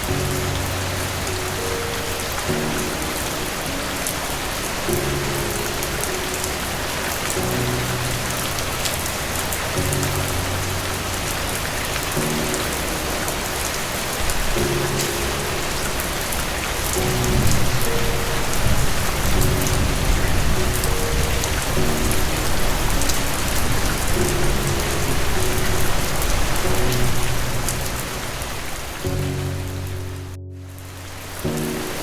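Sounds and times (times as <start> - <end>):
soft music of low held notes: 0.0 - 32.0
steady rain falling: 0.0 - 32.0
low rumble of thunder: 7.5 - 30.1.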